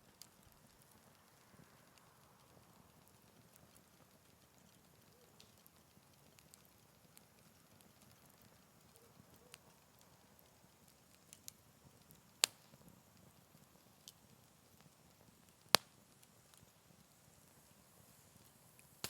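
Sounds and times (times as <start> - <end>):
campfire crackling: 0.0 - 19.0
loud fire pops: 10.0 - 17.1.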